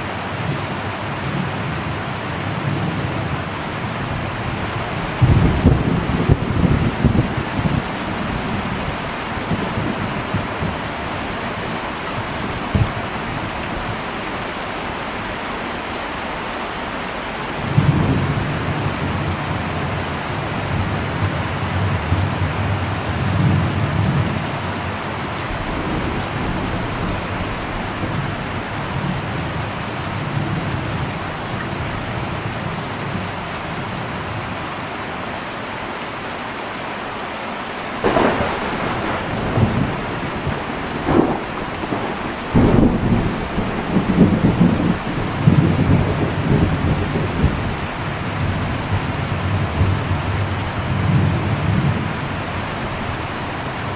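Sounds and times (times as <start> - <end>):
heavy rain on metal roof: 0.0 - 53.9
rolling thunder rumble: 2.6 - 14.5, 17.4 - 32.4, 38.0 - 53.9.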